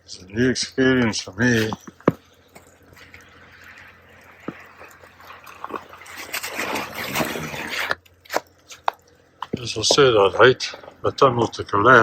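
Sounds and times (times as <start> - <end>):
hoe scraping snow off plastic: 3.0 - 8.5.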